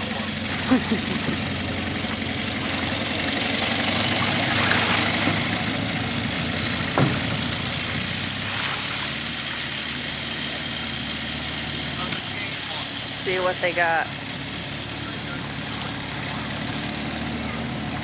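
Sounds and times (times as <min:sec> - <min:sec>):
engine idling: 0:00.0 - 0:18.0
sharp knock: 0:06.9 - 0:07.5.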